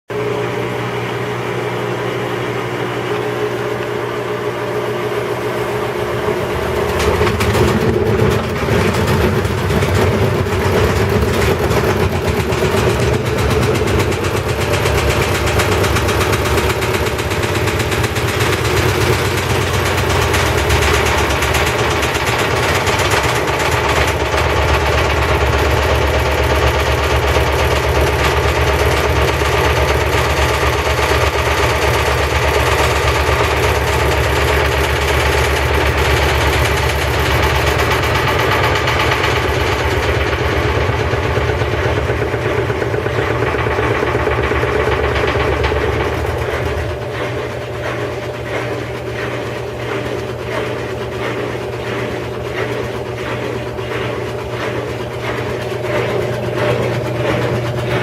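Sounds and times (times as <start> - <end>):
washing machine mechanical noise: 0.1 - 58.0.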